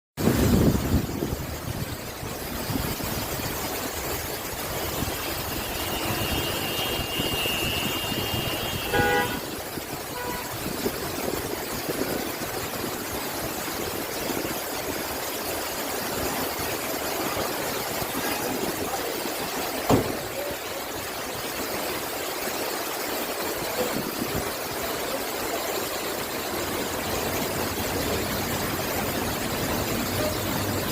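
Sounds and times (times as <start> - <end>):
road traffic: 3.3 - 10.8, 25.4 - 30.9.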